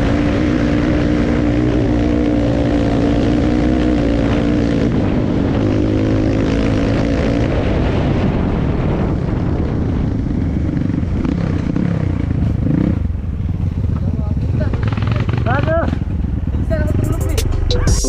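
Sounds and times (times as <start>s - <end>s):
dirt bike engine revving: 0.0s - 7.8s.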